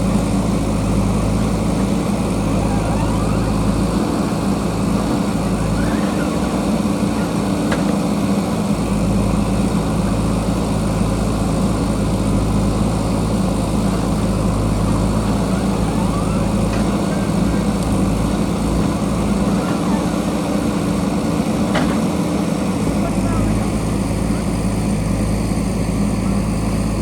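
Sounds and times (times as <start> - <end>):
diesel engine running: 0.0 - 27.0
faint machine whines: 2.4 - 8.0, 14.8 - 21.0.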